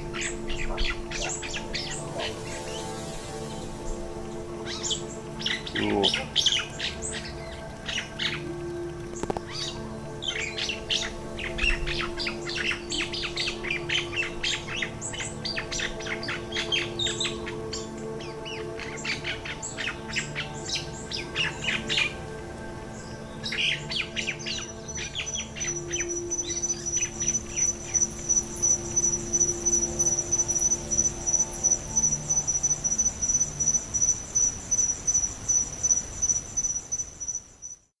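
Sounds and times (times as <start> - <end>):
insect trilling: 0.0 - 9.3, 25.7 - 37.8
mynah birds chirping: 0.0 - 38.0.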